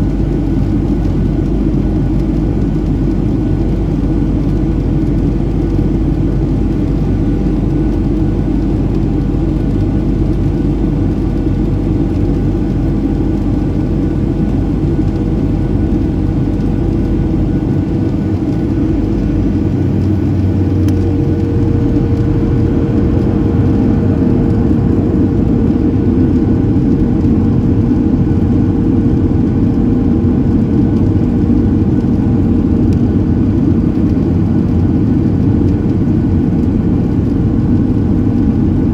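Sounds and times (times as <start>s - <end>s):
jet engines droning: 0.0s - 38.9s
steady hums: 0.0s - 38.9s
rushing airflow: 14.2s - 36.2s.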